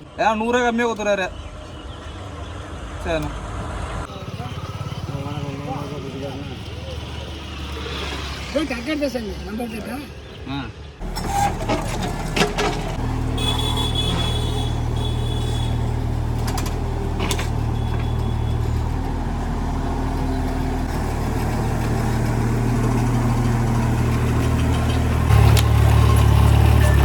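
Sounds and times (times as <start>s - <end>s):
diesel engine running: 11.0s - 27.0s.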